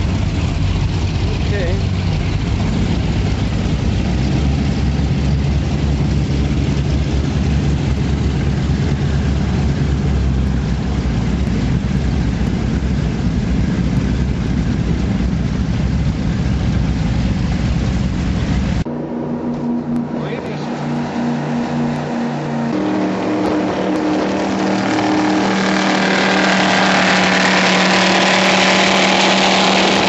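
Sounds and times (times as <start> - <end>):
powerboat engines rumbling: 0.0 - 30.0
wind and water rushing: 0.0 - 30.0.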